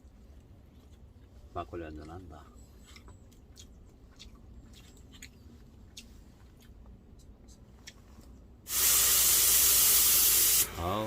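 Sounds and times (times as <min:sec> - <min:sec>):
low steady hum: 0:00.0 - 0:08.7.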